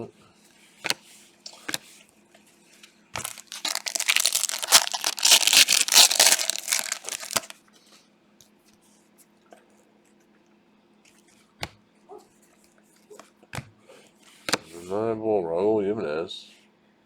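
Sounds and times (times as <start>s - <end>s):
plastic wrapper tearing and crinkling: 3.2s - 7.5s.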